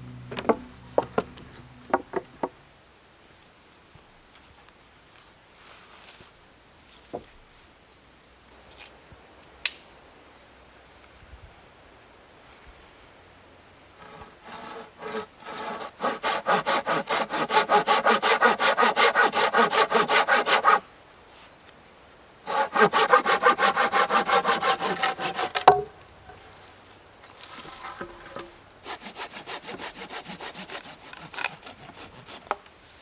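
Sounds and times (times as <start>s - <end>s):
hand saw cutting wood: 14.0s - 20.8s, 22.5s - 25.9s, 27.5s - 32.7s.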